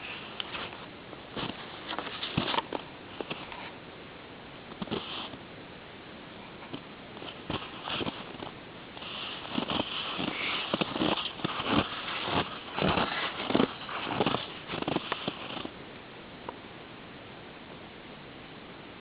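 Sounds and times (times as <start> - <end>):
footsteps crunching in snow: 0.5 - 3.4, 7.2 - 15.7.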